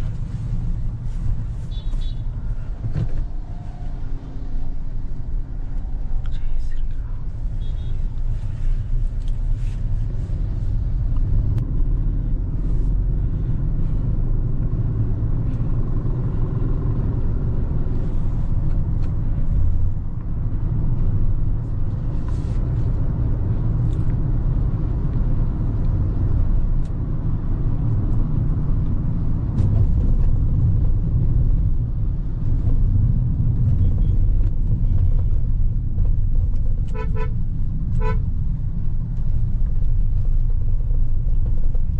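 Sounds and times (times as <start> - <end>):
car engine and road noise: 0.0 - 41.9
car horn toot: 1.7 - 2.3, 7.6 - 8.0, 36.9 - 38.3.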